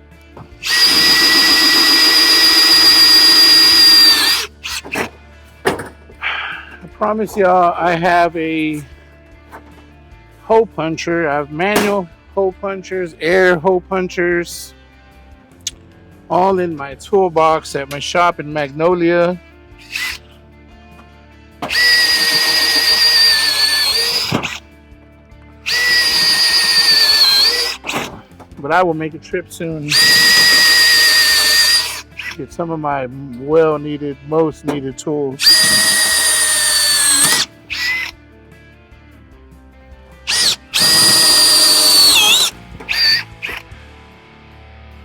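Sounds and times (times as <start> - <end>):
background music: 0.0 - 45.0
electric drill drilling sheet metal: 0.4 - 5.1, 19.8 - 20.2, 21.6 - 24.6, 25.7 - 28.4, 29.9 - 32.4, 35.4 - 38.2, 40.3 - 43.7.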